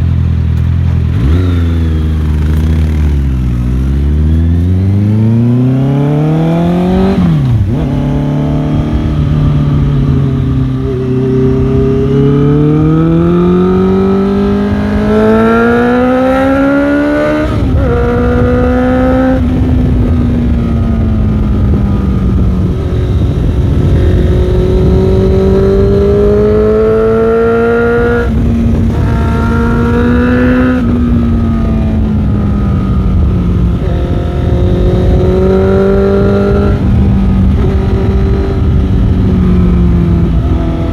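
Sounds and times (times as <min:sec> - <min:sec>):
motorcycle engine revving: 0:00.0 - 0:40.9
wind rush over microphone: 0:01.0 - 0:40.9.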